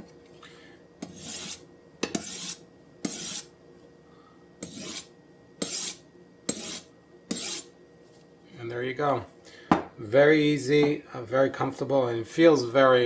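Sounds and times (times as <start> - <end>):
knife stroked on honing steel: 1.0 - 3.5, 4.6 - 7.7.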